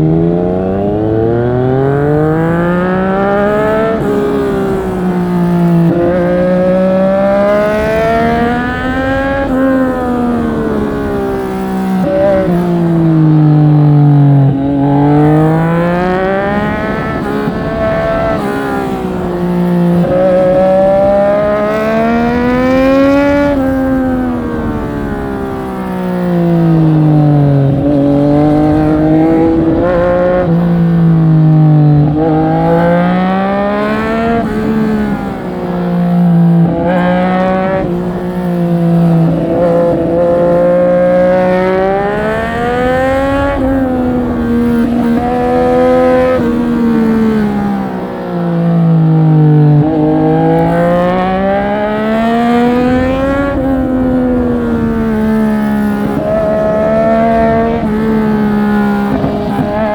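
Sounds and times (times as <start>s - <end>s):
motorcycle engine revving through gears: 0.0s - 59.9s.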